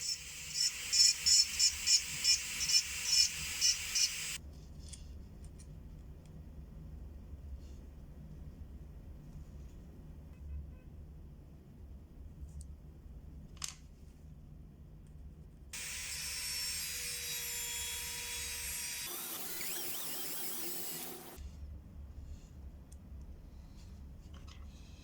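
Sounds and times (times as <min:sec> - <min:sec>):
high-speed power tool running: 0:00.0 - 0:04.4, 0:15.8 - 0:21.4.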